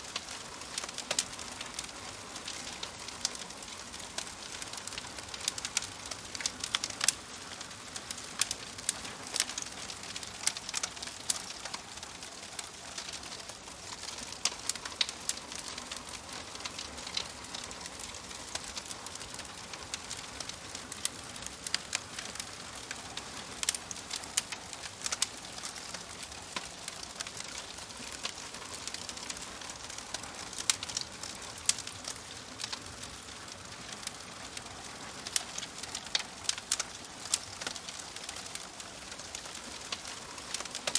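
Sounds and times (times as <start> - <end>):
fire crackling and popping: 0.0 - 40.9.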